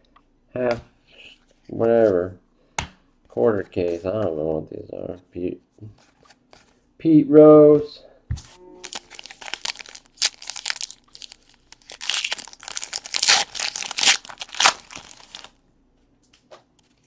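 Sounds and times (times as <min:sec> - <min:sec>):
wrapper crinkling and tearing: 0:08.8 - 0:15.6.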